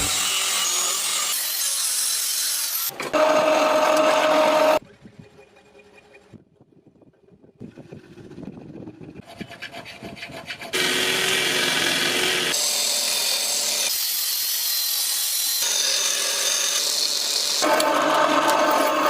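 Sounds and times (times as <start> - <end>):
power tool grinding: 0.0 - 4.8, 9.4 - 19.0.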